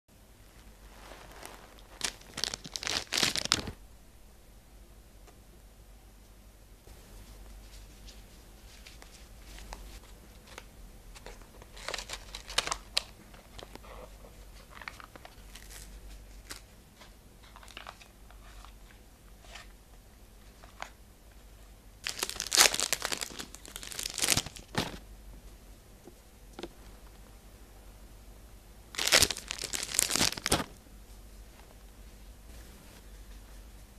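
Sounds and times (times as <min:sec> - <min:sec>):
packaging crinkling and rustling: 0:00.6 - 0:03.8, 0:10.4 - 0:19.7, 0:22.0 - 0:25.0, 0:28.9 - 0:30.8.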